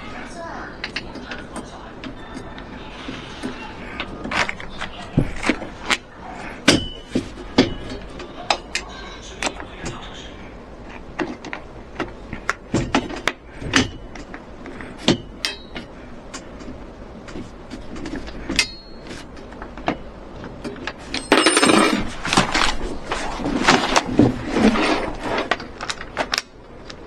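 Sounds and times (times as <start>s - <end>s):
clatter of handling: 10.9s - 27.0s.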